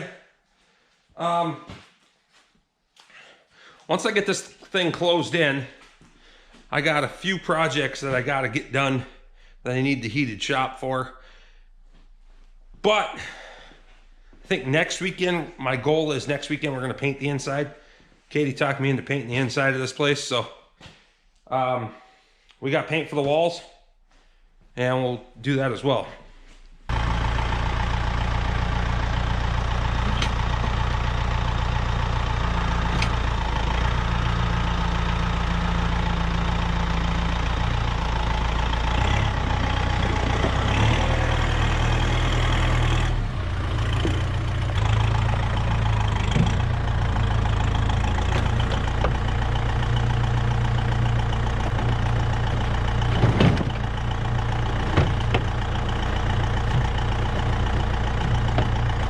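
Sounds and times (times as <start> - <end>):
vehicle engine running: 4.7 - 17.0, 26.9 - 59.0
short knocks: 51.8 - 53.9.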